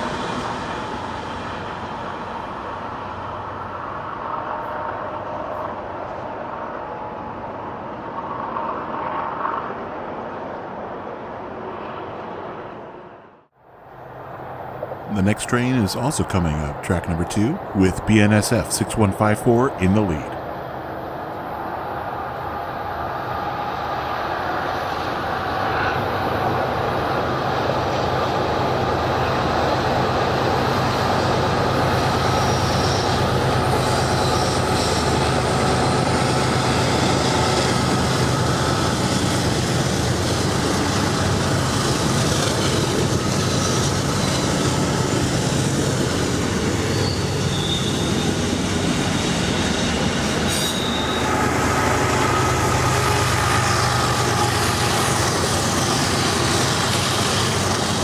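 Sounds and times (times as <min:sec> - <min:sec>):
freight train rumble: 0:00.0 - 0:58.0
steel wheels squealing: 0:32.3 - 0:35.2, 0:44.1 - 0:44.7, 0:46.8 - 0:51.5.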